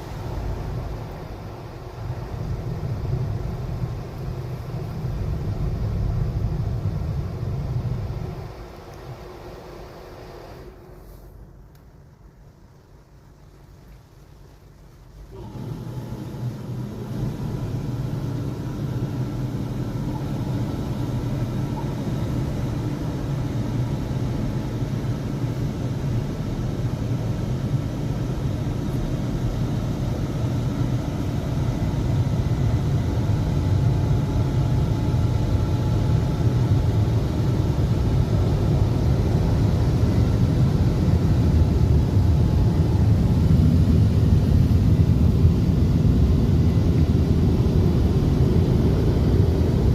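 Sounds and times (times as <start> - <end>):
car wash machinery rumbling: 0.0 - 49.9
faint steady tones: 8.1 - 45.4.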